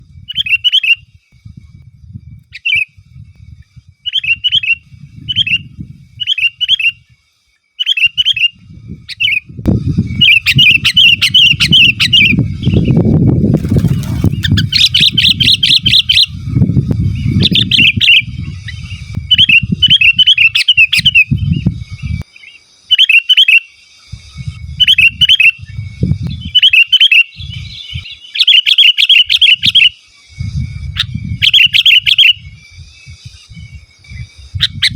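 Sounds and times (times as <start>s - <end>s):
bird calling bubbly notes: 13.6s - 16.3s.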